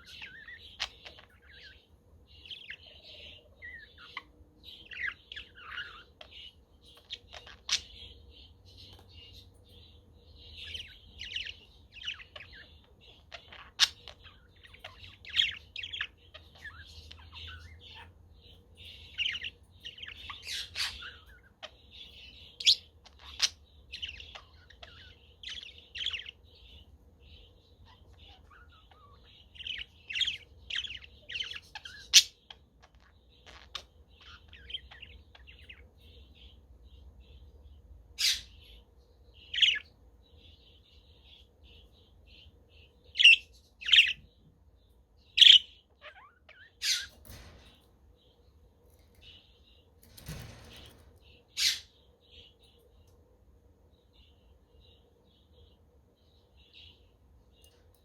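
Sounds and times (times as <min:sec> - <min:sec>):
budgerigars chattering: 0:00.0 - 0:01.9, 0:45.4 - 0:47.4
sharp bird calls: 0:45.3 - 0:47.6.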